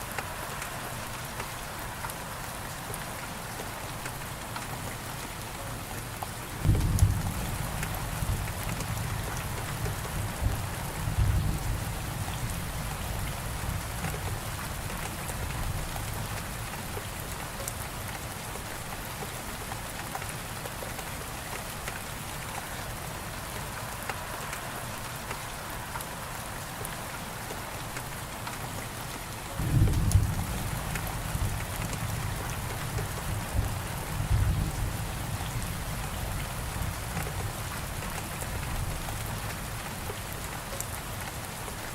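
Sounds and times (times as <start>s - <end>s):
steady rain falling: 0.0s - 41.9s
thunder rumbling: 6.6s - 14.0s, 29.6s - 37.2s.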